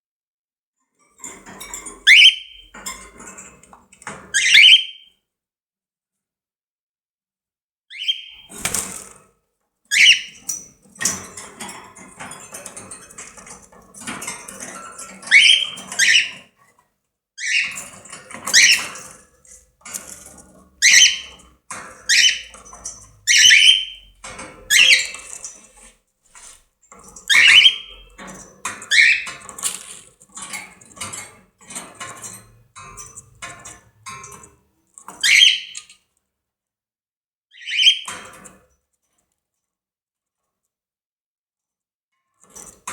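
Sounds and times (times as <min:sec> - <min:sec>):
cockatiel calling: 0:02.1 - 0:02.6, 0:04.4 - 0:05.1, 0:07.9 - 0:08.4, 0:09.9 - 0:10.4, 0:23.3 - 0:24.0, 0:37.5 - 0:38.1.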